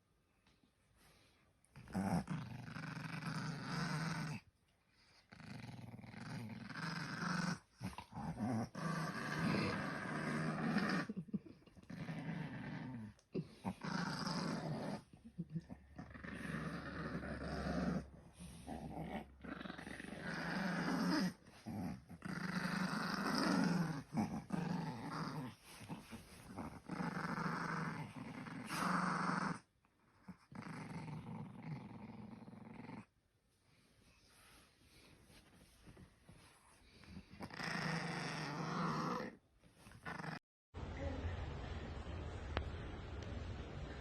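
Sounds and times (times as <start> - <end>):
dog growling: 1.8 - 4.4, 5.1 - 33.1, 36.9 - 40.4.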